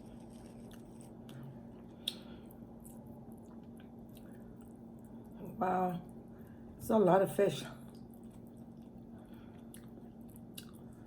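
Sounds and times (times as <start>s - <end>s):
person chewing: 0.0s - 5.4s, 7.9s - 11.0s
small mouth clicks: 2.0s - 2.3s.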